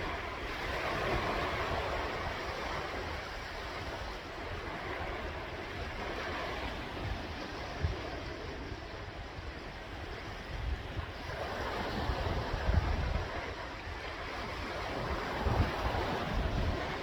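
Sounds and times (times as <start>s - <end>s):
wind buffeting microphone: 0.0s - 17.0s
sea waves washing in: 11.0s - 17.0s.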